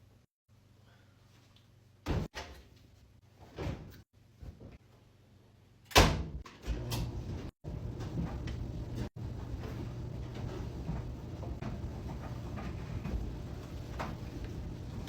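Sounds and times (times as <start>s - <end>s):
steady low hum: 6.8s - 15.0s.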